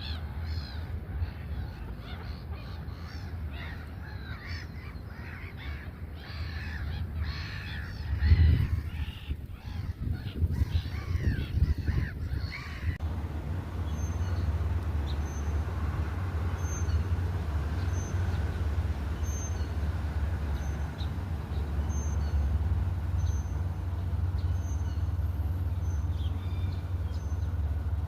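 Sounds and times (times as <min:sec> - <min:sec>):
flock of birds calling: 0:00.0 - 0:28.0
low rumble: 0:07.1 - 0:28.0.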